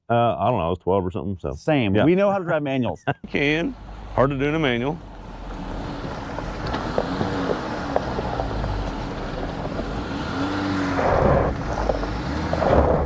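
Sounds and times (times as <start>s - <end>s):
vehicle engine rumble: 3.2s - 13.0s
rushing noise: 5.7s - 13.0s.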